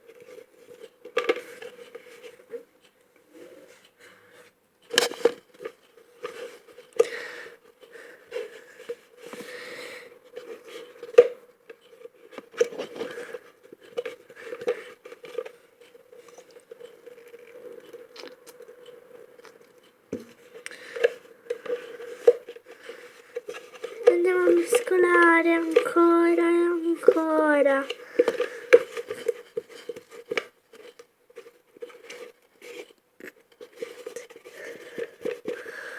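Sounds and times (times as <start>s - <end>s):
faint steady hum: 13.0s - 30.4s.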